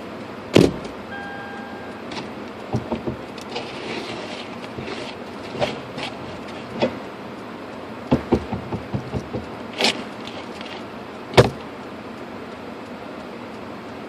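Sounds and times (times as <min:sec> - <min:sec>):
car door thump: 0:00.6 - 0:00.9, 0:11.4 - 0:11.6.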